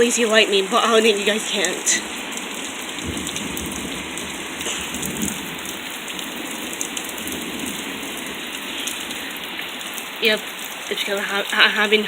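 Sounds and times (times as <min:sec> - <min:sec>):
raindrop ticks: 0:00.0 - 0:12.0
steady rain falling: 0:00.0 - 0:12.0.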